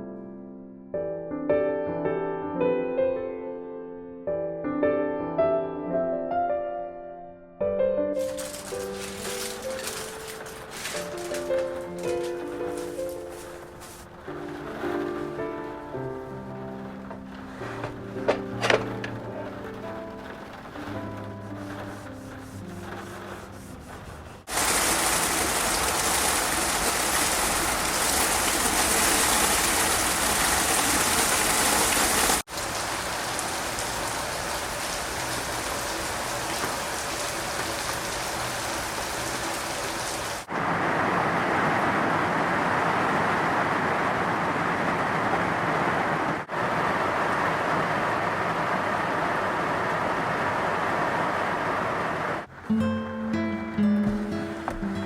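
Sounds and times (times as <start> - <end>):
background music: 0.0 - 24.2, 52.7 - 55.0
heavy rain pouring: 8.2 - 52.6.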